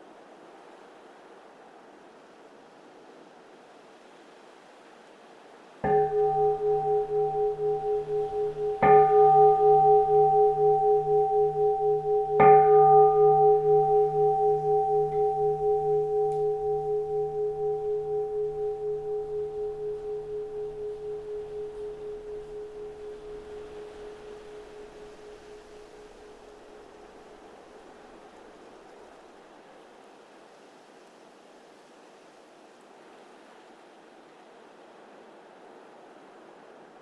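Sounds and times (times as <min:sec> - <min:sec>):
bowl bell ringing: 0:05.8 - 0:27.4.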